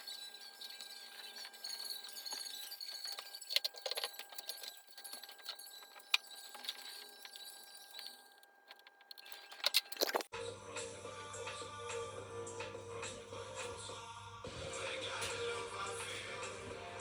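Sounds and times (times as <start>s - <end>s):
metal tools clinking: 0.0s - 10.3s.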